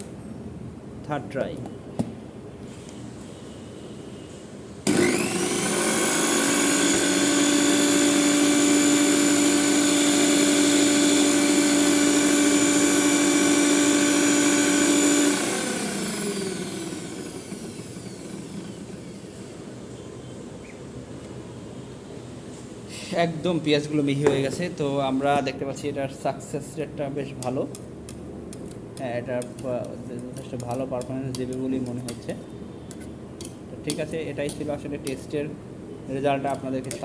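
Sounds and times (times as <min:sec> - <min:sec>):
mixer grinder motor whine: 0:04.8 - 0:19.6.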